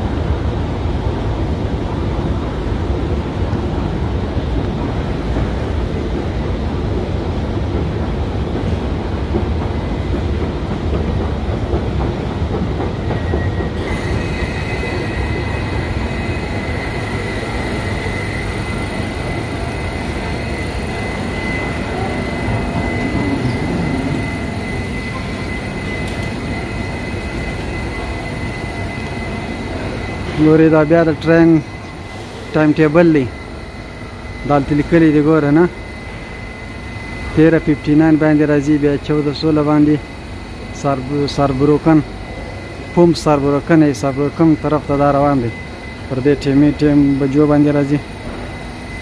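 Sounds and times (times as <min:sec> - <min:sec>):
train low rumble: 0:00.0 - 0:49.0
high-pitched whine: 0:13.0 - 0:49.0.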